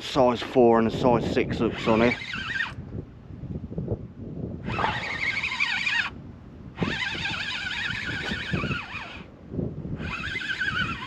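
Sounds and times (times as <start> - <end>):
fishing reel drag screaming: 1.6 - 2.8, 4.6 - 6.2, 6.8 - 9.3, 10.0 - 11.0.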